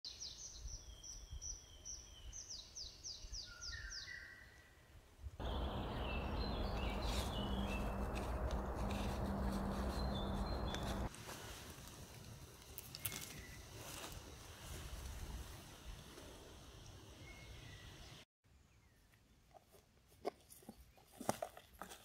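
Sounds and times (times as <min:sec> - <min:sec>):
songbird singing: 0:00.1 - 0:04.8, 0:05.4 - 0:11.1, 0:12.9 - 0:13.7, 0:16.8 - 0:19.4
rushing noise with low hum: 0:05.4 - 0:11.1.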